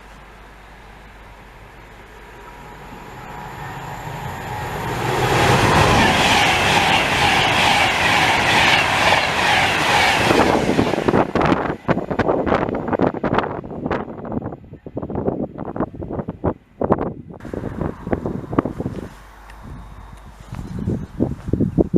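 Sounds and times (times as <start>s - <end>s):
train wheels on rail: 0.0s - 15.9s
wind buffeting microphone: 1.6s - 21.9s.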